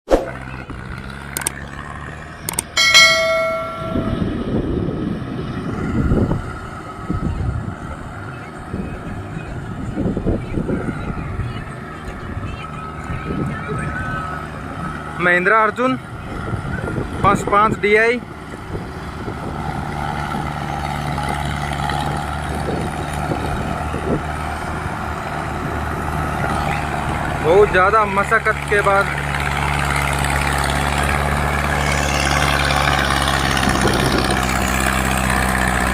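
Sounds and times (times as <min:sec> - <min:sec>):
tractor diesel engine running: 0:00.3 - 0:35.9
bell-like ring: 0:02.8 - 0:04.5.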